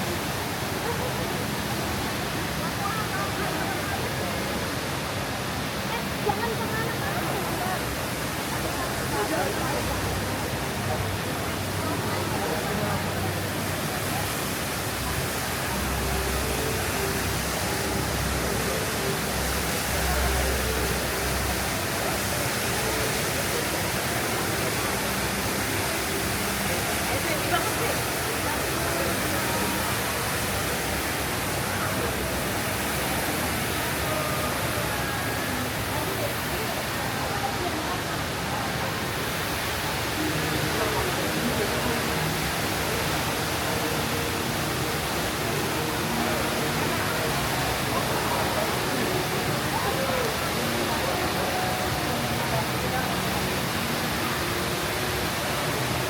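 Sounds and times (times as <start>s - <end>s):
indoor waterfall pouring: 0.0s - 56.0s
murmur of voices: 0.0s - 56.0s.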